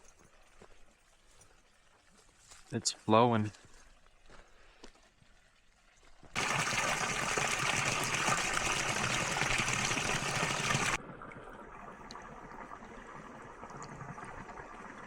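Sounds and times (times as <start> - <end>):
rush of flowing water: 6.4 - 11.0.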